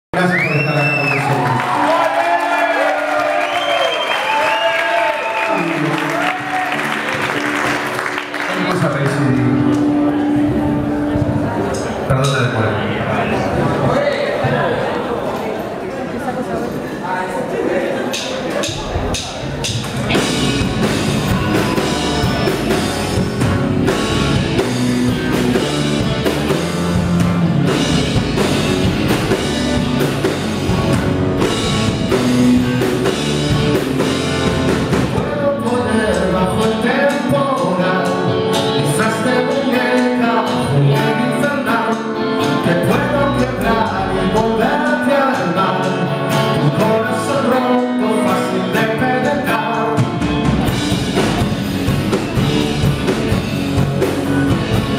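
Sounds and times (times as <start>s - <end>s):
rock band playing live: 4.3s - 13.9s, 18.1s - 54.9s
drum kit beat: 18.1s - 54.9s.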